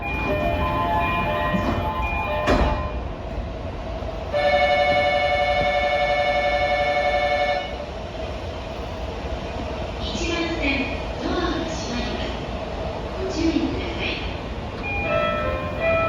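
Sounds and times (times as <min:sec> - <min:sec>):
train rumble: 0:00.0 - 0:16.0
clunk: 0:01.5 - 0:03.0.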